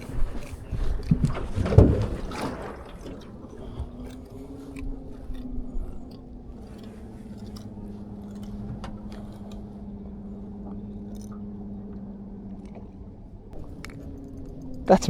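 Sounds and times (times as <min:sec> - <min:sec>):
small clicks and knocks: 0:00.0 - 0:14.9
boat motor humming: 0:00.0 - 0:15.0.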